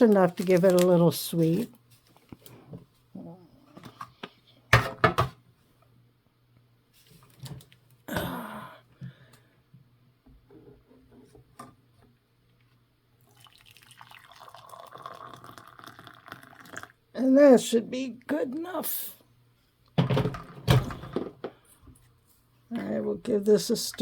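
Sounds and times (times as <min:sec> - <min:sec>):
sugar packet rustle: 0:00.0 - 0:02.4
sugar trickling into cup: 0:13.2 - 0:17.0.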